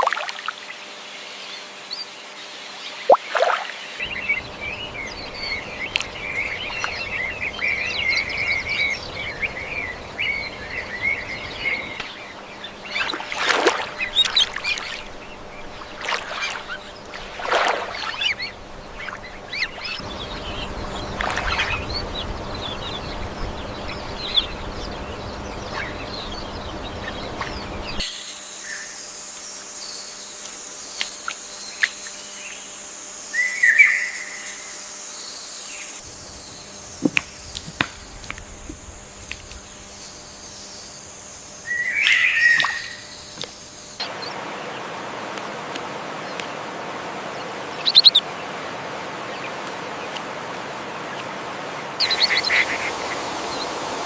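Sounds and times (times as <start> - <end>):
birds calling: 0.0 - 54.0
high-pitched insect drone: 3.5 - 44.1.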